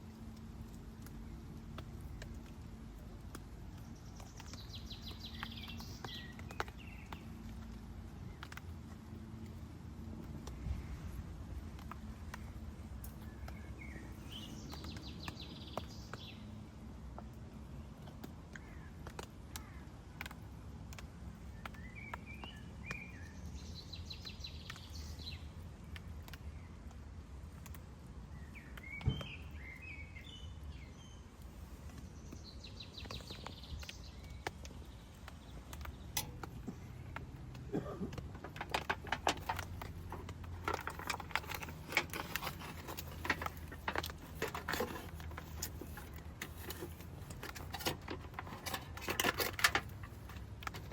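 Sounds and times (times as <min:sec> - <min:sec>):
low outdoor rumble: 0:00.0 - 0:28.8, 0:30.5 - 0:50.9
songbird singing warbled phrases: 0:03.7 - 0:07.5
quick sharp clicks and crackles: 0:32.0 - 0:50.9.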